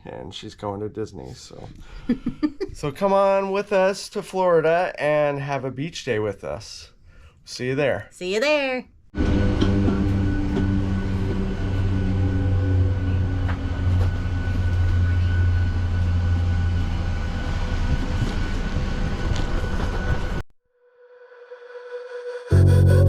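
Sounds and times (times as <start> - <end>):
music tone: 21.5 - 23.0.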